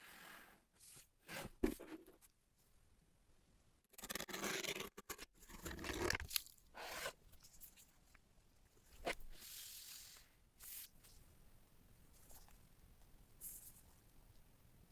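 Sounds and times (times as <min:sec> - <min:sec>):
soft rustle: 0:12.1 - 0:14.4.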